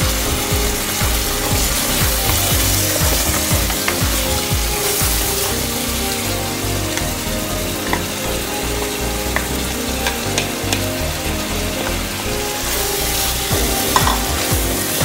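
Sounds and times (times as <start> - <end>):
meat sizzling in a pot: 12.6 - 15.0.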